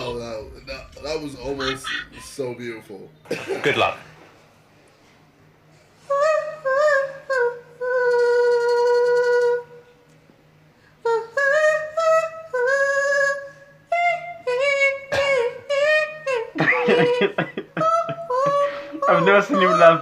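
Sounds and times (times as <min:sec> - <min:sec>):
woman singing unaccompanied: 0:06.0 - 0:09.9, 0:11.0 - 0:20.0.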